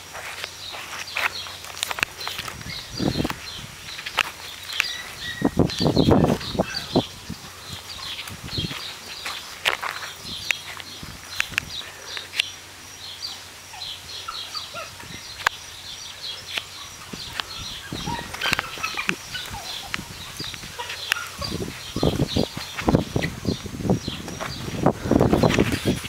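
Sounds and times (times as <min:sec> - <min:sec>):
small birds chirping: 0:00.0 - 0:26.0
sharp clicks: 0:09.6 - 0:12.6.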